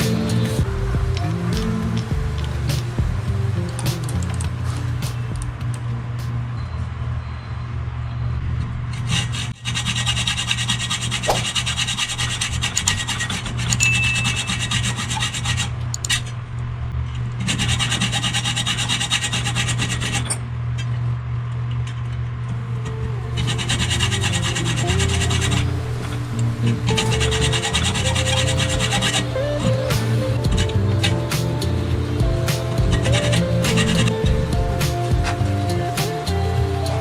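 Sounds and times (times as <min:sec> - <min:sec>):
steady low hum: 0:00.0 - 0:37.0
abrasive scraping strokes: 0:09.0 - 0:16.3, 0:22.9 - 0:37.0.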